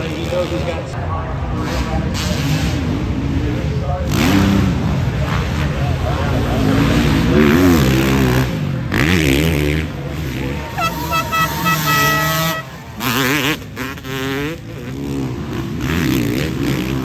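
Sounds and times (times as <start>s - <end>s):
motocross engines revving: 0.0s - 17.0s
horn blaring: 10.6s - 13.4s.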